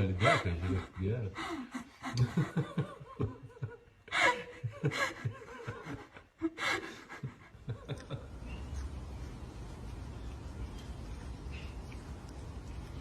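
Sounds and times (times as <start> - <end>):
person laughing: 1.5 - 8.3.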